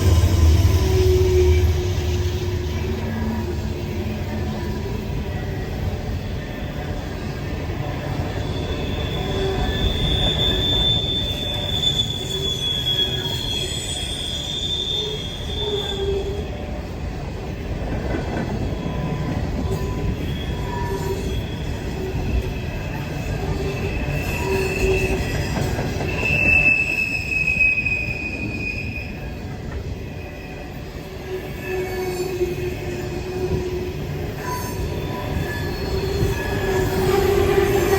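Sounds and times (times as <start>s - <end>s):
train cars rumbling past: 0.0s - 37.9s
wheel flanges squealing: 8.1s - 16.6s, 18.7s - 29.6s, 30.2s - 37.9s.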